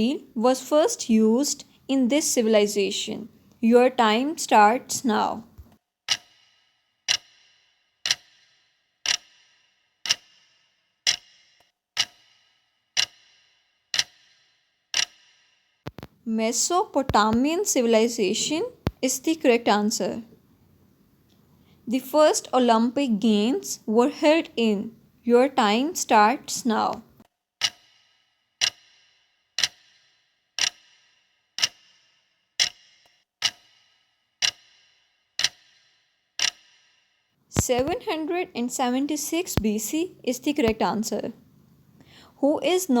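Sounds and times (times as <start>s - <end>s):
clock ticking with ringing tail: 0.0s - 20.4s, 21.9s - 43.0s
clock ticking with short ring: 6.1s - 15.6s, 27.2s - 37.0s.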